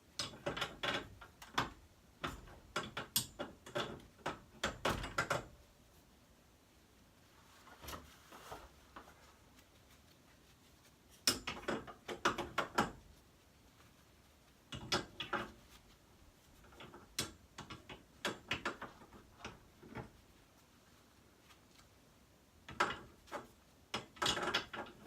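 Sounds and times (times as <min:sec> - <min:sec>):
metallic clicks of hand tools: 0:00.2 - 0:05.3.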